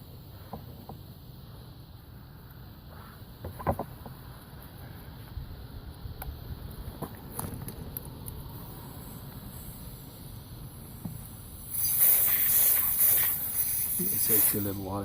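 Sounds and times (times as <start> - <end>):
blower hissing blast of air: 8.5 - 15.0.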